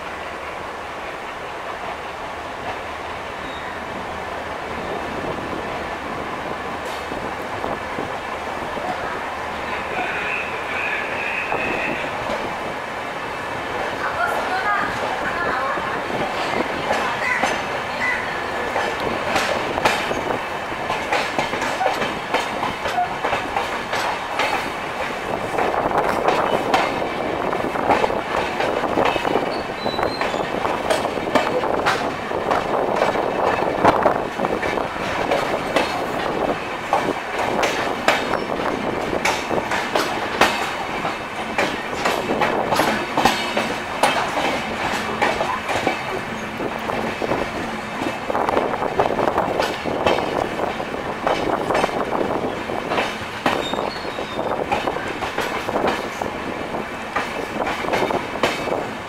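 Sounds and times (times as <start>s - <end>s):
wheels rumbling on rails: 0.0s - 59.0s
sharp clacks from rail joints: 6.8s - 7.5s, 16.4s - 56.3s, 57.1s - 58.9s.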